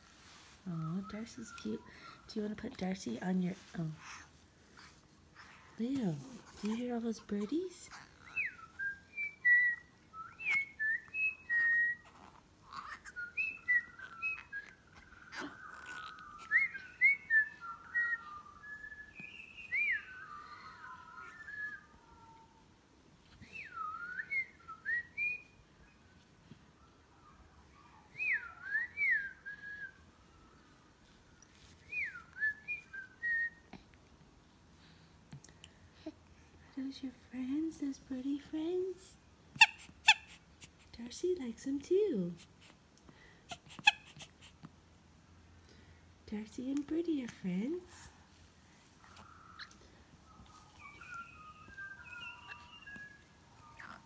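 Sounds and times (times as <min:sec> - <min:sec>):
birds singing: 0:12.6 - 0:22.0, 0:49.0 - 0:54.0.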